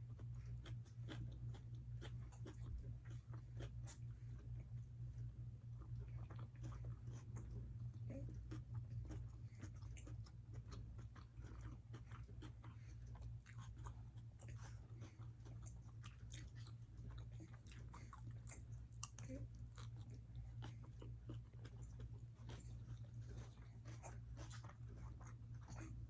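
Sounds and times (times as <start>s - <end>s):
person chewing food: 0.0s - 26.0s
steady low hum: 0.0s - 26.0s
mouth clicks and crunches: 8.3s - 26.0s.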